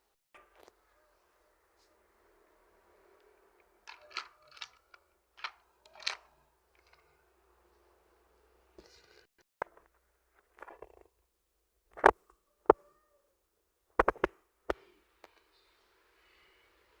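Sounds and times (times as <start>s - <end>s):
wooden toy pieces knocking: 3.8s - 7.0s, 14.0s - 14.3s.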